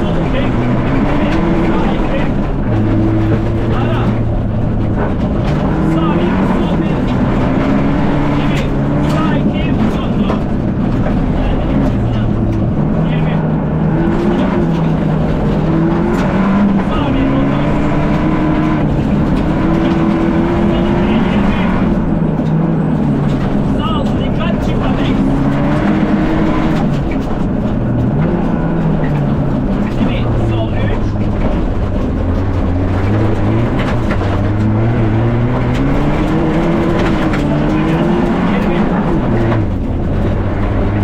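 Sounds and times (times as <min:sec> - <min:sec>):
rally car engine from cabin: 0:00.0 - 0:41.0.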